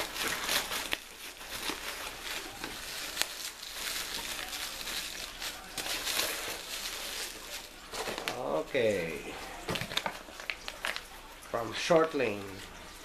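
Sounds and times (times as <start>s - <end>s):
packaging rustling: 0.0s - 12.6s.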